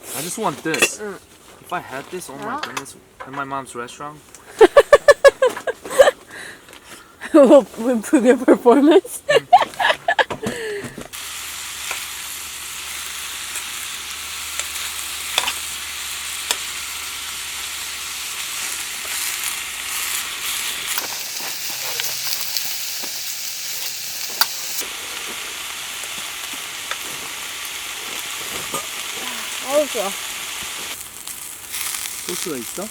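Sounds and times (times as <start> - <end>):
food sizzling in a pan: 11.1 - 32.9.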